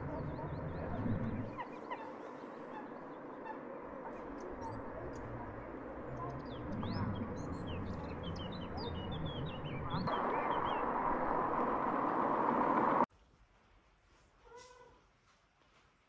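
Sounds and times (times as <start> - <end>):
high bird chirps: 6.1 - 11.8.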